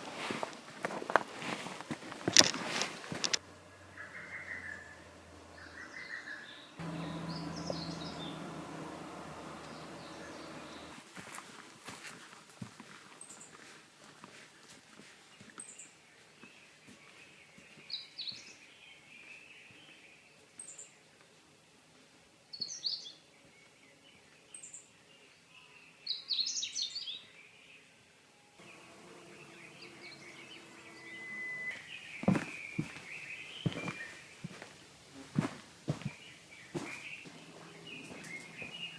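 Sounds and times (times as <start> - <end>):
birds chirping: 0.0 - 11.0, 28.6 - 38.9.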